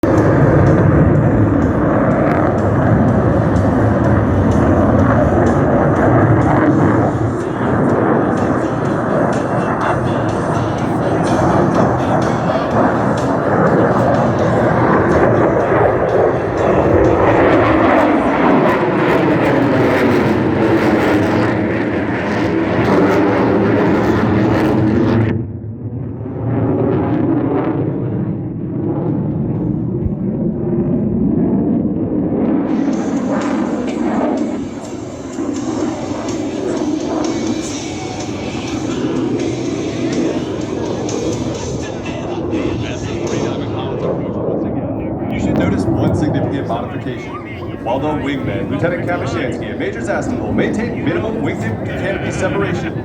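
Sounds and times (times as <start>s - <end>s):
jet aircraft engine roar: 0.0s - 53.0s.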